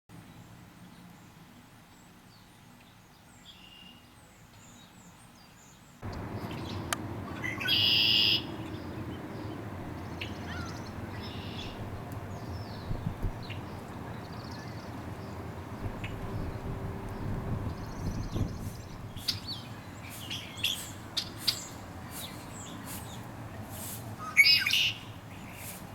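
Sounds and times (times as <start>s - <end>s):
songbirds chirping: 0.2s - 25.9s
loud harsh bird call: 6.1s - 23.1s, 24.2s - 25.7s.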